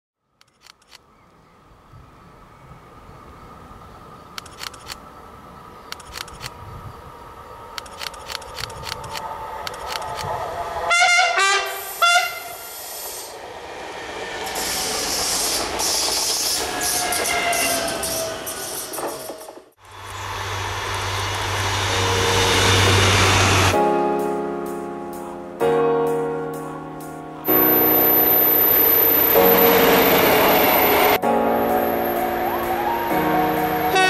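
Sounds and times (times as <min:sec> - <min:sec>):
train wheels on rails: 0:07.7 - 0:11.0, 0:11.6 - 0:23.8
train horn: 0:10.8 - 0:12.8, 0:16.6 - 0:18.3, 0:31.8 - 0:34.0.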